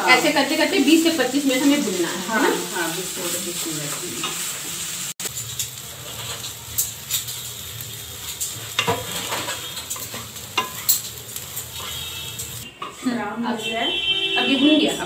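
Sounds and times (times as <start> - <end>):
paste sizzling in oil: 0.0 - 12.7
spatula stirring and scraping: 3.6 - 13.0.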